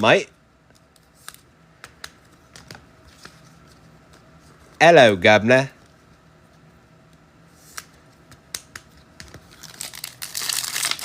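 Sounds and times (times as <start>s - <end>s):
wrapper crinkling and tearing: 9.5s - 11.0s.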